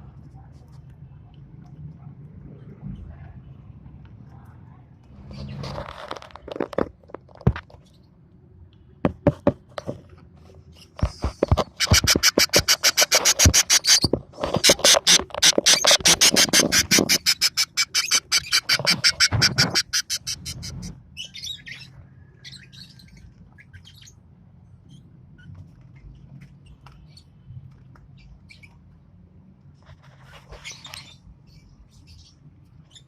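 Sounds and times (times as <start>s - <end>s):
lovebirds chirping: 15.4s - 24.2s.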